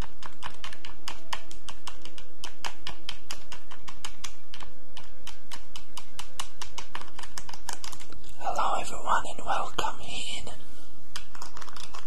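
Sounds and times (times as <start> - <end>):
clicks and taps on props: 0.0 - 8.3
low background noise: 0.0 - 12.0.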